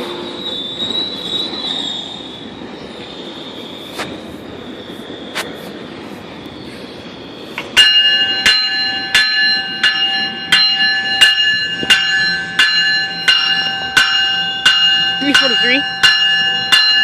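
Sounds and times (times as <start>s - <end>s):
locomotive bell ringing: 0.0s - 2.5s, 7.6s - 17.0s
low rumble of rail traffic: 0.0s - 17.0s.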